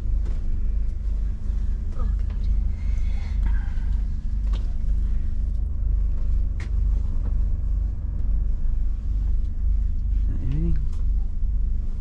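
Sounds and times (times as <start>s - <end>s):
train carriage rumbling: 0.0s - 12.0s.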